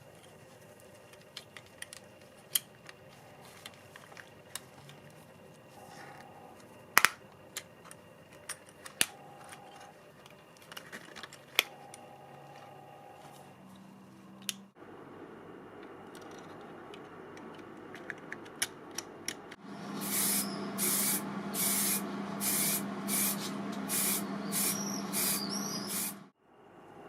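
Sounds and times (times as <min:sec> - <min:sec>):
low steady hum: 0:00.0 - 0:27.0
spray paint hissing bursts: 0:19.8 - 0:26.3.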